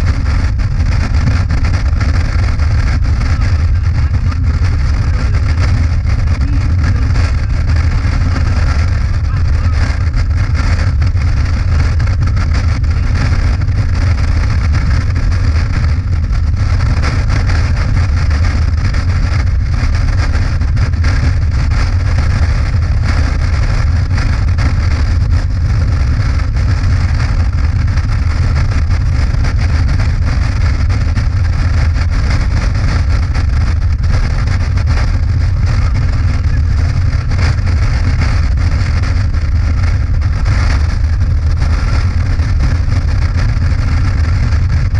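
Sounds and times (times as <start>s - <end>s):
motorcycle engine drone: 0.0s - 44.9s
wind rushing over microphone: 0.0s - 44.9s.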